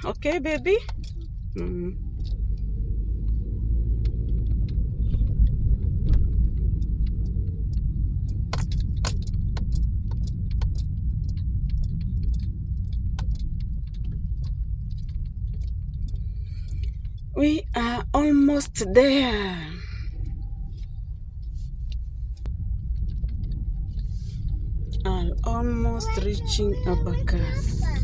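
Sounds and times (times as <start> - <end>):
light clicks and rattles: 0.0 - 17.3
car engine and road noise: 0.0 - 28.0.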